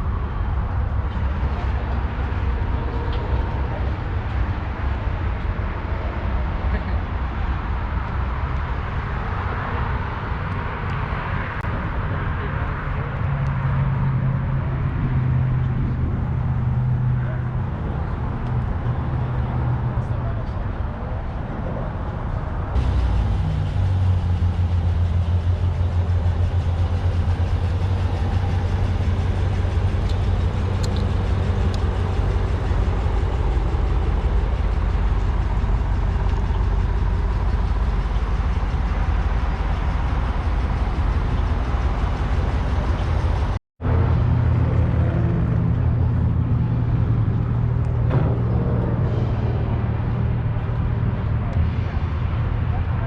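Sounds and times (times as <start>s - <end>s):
car engine running: 22.8s - 49.3s.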